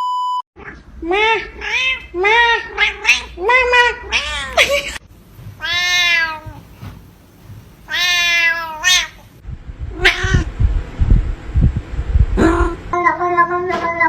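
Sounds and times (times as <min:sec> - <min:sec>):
cat meowing: 0:00.6 - 0:05.0, 0:05.6 - 0:06.7, 0:07.9 - 0:09.3, 0:10.0 - 0:10.5.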